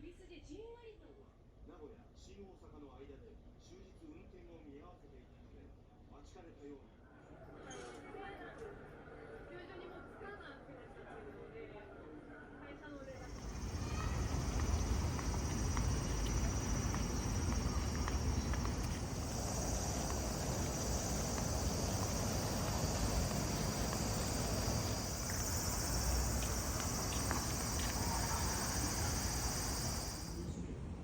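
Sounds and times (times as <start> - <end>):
insects droning: 13.2 - 30.5
low rumble: 13.3 - 30.4.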